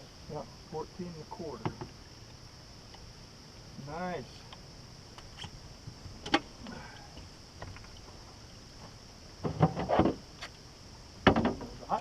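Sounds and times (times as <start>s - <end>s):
steady high hiss: 0.0s - 12.0s
knocks on a kayak: 11.2s - 11.7s.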